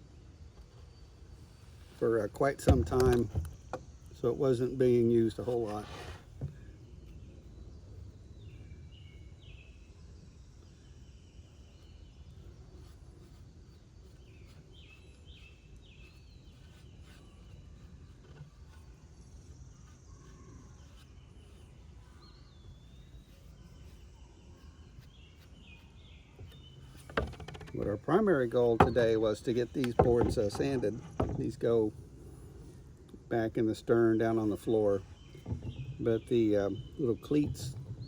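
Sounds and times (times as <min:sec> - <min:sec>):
birds chirping: 0:18.7 - 0:38.0.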